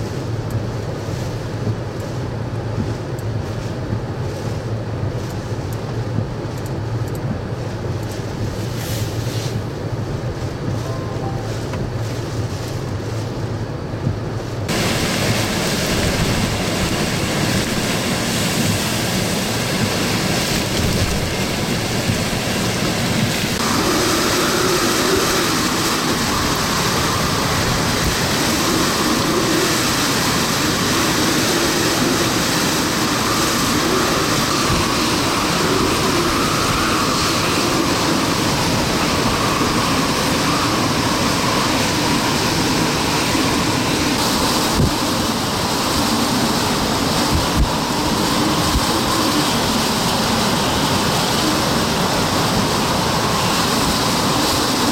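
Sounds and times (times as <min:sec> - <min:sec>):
hurricane-force wind: 0:00.0 - 0:54.9
pounding waves: 0:14.7 - 0:54.9.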